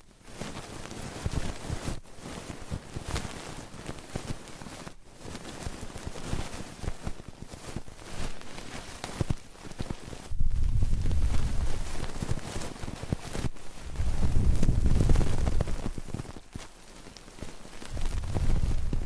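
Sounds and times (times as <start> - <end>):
scratching and rubbing on microphone: 0.0 - 19.0
soft low thumps: 10.3 - 11.9, 13.8 - 16.0, 17.9 - 19.0.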